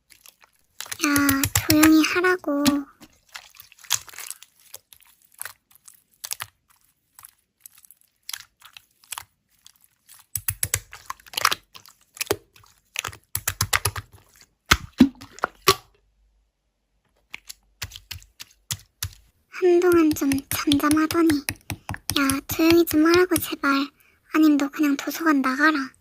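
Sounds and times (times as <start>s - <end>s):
slime crackling and popping: 0.2s - 15.0s.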